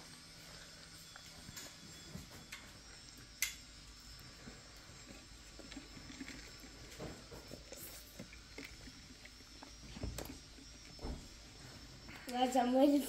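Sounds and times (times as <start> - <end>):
child chewing: 4.1 - 11.1.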